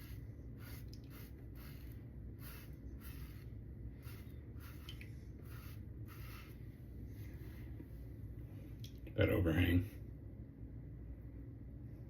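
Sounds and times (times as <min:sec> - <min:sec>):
razor scraping stubble: 0:00.0 - 0:06.6.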